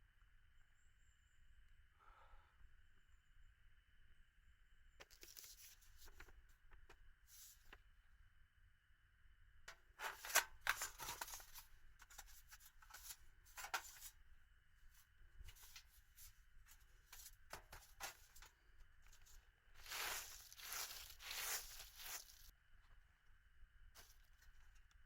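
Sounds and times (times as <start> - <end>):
rustling and crinkling of gear: 5.0 - 7.8, 9.8 - 23.0, 24.0 - 25.0.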